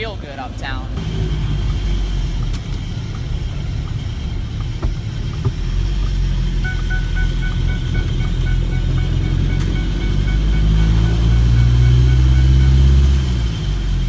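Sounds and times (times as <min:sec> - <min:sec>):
diesel engine rumbling: 0:00.0 - 0:14.0
pulsing high tone: 0:06.6 - 0:13.5.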